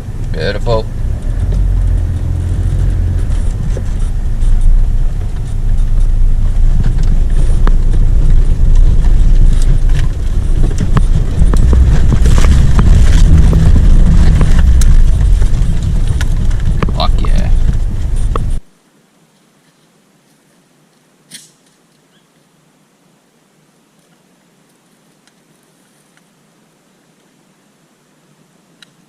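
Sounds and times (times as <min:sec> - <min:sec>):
vehicle rumbling low: 0:00.0 - 0:18.7
vehicle body knocks and rattles: 0:01.0 - 0:18.6.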